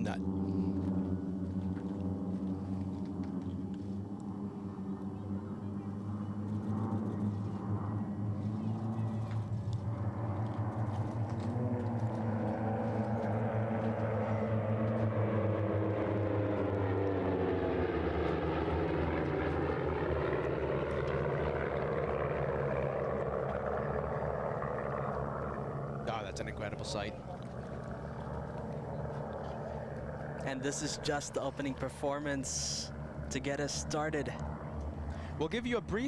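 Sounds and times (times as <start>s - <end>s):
propeller airplanes flying past: 0.0s - 36.0s.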